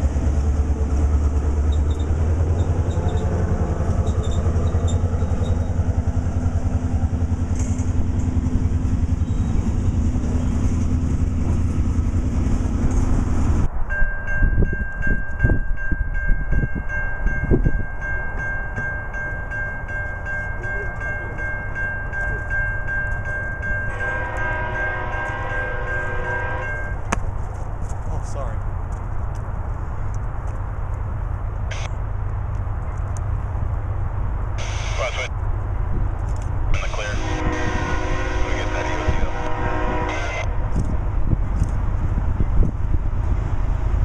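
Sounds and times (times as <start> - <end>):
freight train wheels rumbling: 0.0 - 44.0
distant train horn: 23.7 - 27.1, 34.6 - 35.3, 36.7 - 40.9
steady high tone: 34.6 - 35.3, 36.8 - 40.6.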